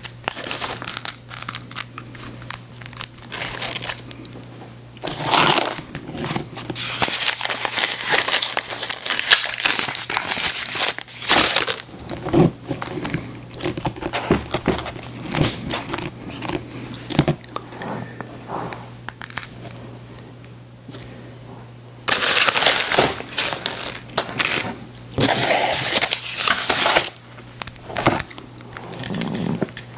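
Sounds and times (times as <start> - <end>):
candy wrapper crinkling: 0.0 - 4.2, 5.0 - 17.7, 19.1 - 19.6, 22.1 - 29.5
biting and chewing: 11.6 - 17.8.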